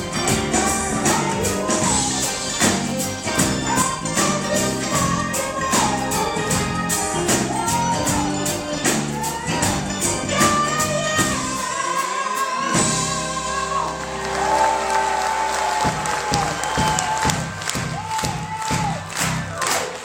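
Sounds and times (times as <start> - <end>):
people singing: 0.0 - 14.7
live band playing: 0.0 - 19.8.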